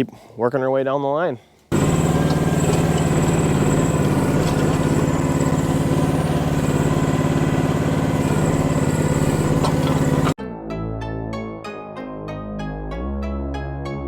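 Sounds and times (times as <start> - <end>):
small excavator engine running: 1.7 - 10.4.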